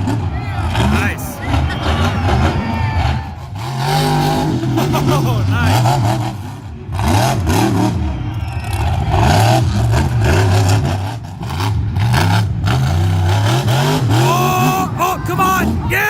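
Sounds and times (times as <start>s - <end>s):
monster truck engine revving: 0.0s - 16.0s.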